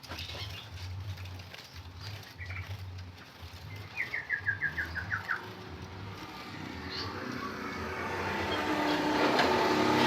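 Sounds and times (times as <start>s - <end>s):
bird singing: 1.6s - 9.2s.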